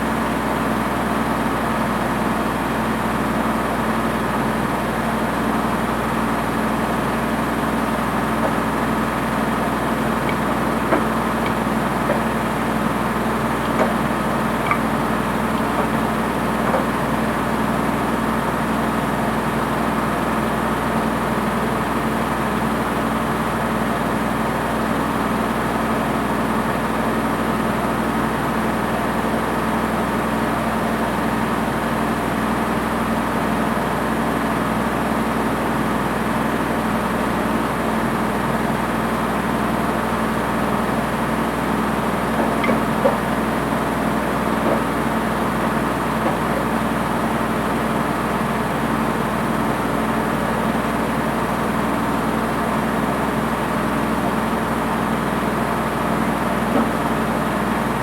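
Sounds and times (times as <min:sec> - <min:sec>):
washing machine motor hum: 0:05.9 - 0:20.0, 0:40.2 - 0:58.0.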